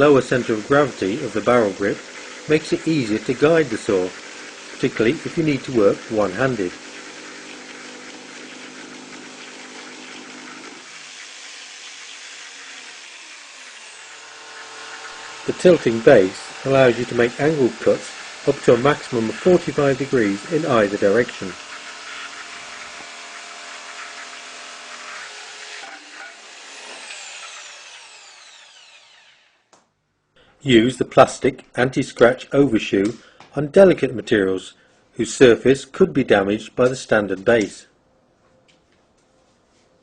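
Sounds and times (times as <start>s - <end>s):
jigsaw cutting: 0.0s - 29.7s.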